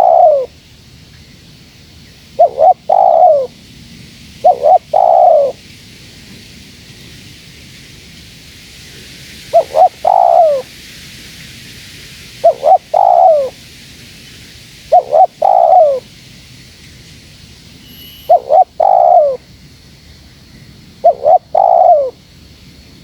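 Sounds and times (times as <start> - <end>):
dove cooing: 0.0 - 0.5, 2.4 - 3.6, 4.4 - 5.6, 9.5 - 10.7, 12.4 - 13.6, 14.9 - 16.0, 18.3 - 19.4, 21.0 - 22.2.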